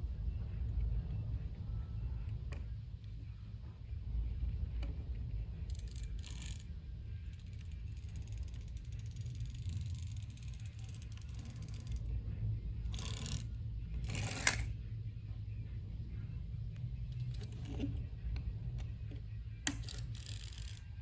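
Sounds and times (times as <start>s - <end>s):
steady low rumble: 0.0s - 21.0s
toy gear clicking: 5.7s - 6.7s, 7.3s - 12.1s, 12.9s - 14.7s, 17.1s - 17.9s, 19.6s - 21.0s.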